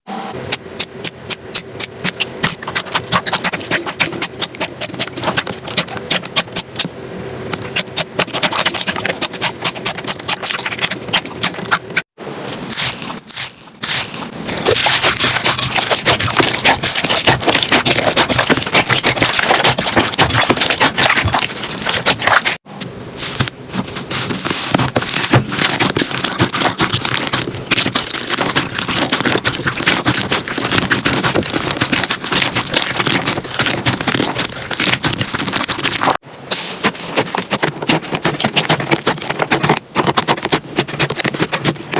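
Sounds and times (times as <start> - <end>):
slime squeezed crackling and popping: 0.5 - 6.8, 7.6 - 12.0, 12.7 - 22.6, 24.4 - 36.2.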